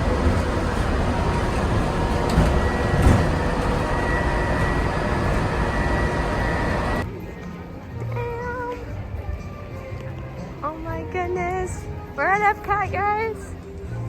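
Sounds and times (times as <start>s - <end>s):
high whine: 0.0s - 7.0s
monorail rumble and rushing: 0.0s - 7.1s.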